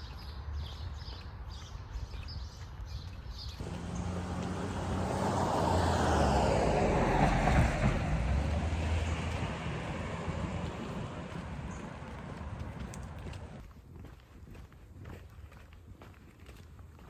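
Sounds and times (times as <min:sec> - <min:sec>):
road noise: 0:03.6 - 0:13.6
vehicle engine hum: 0:03.6 - 0:13.6.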